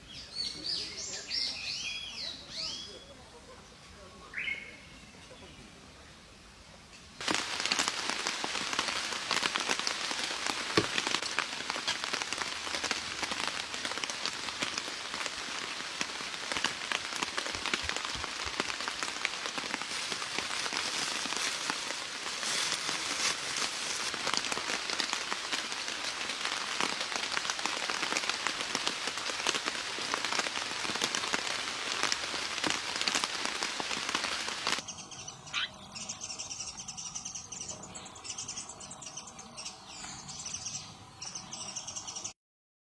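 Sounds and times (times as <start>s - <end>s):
rain pattering: 7.2s - 35.2s.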